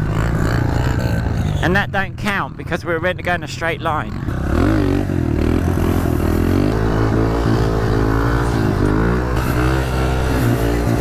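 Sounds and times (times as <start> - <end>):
motorbike engine revving: 0.0 - 1.7, 4.0 - 11.0.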